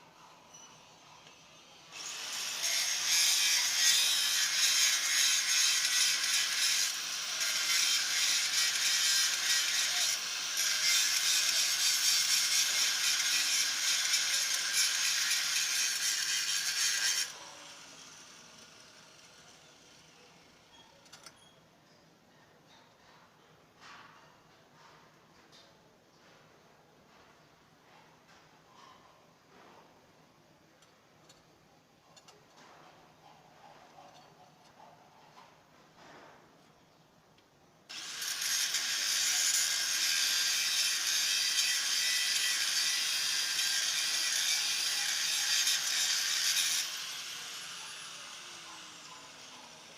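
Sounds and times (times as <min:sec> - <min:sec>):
tool hissing: 0:02.0 - 0:17.4, 0:37.9 - 0:49.9.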